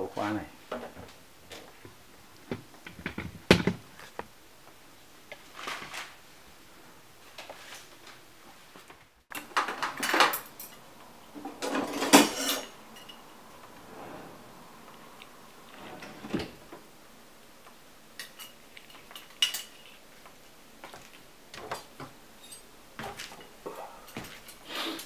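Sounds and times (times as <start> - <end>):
tools and metal fittings clinking: 9.3 - 10.8, 11.6 - 13.2, 22.4 - 23.5.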